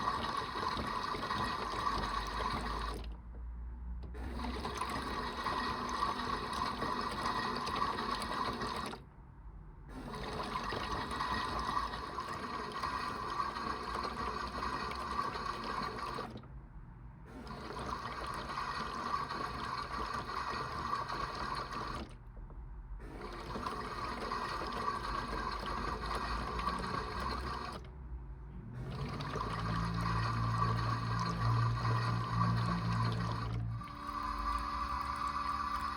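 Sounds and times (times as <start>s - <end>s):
water sloshing in toy washing machine: 0.0s - 3.2s, 4.2s - 9.0s, 10.0s - 16.4s, 17.3s - 22.2s, 23.0s - 27.9s, 28.8s - 35.9s
low motor hum: 0.0s - 35.9s.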